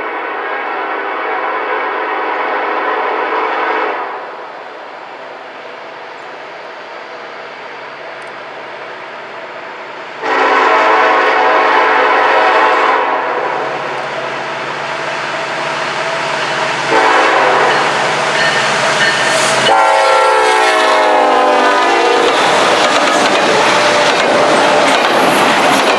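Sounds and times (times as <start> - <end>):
train passing: 0.0 - 25.9
locomotive horn blasts: 10.2 - 13.8, 16.9 - 18.1, 19.6 - 22.4.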